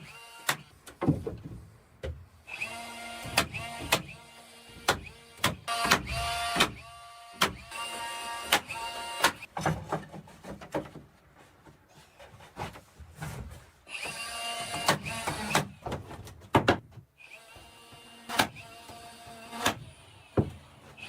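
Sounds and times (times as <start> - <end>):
wood knocking and clattering: 0.9 - 2.2, 9.5 - 13.6, 15.6 - 17.1.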